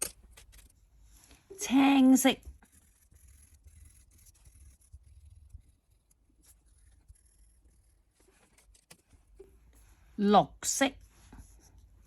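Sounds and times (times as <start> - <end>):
pen scribbling on paper: 2.2 - 9.0.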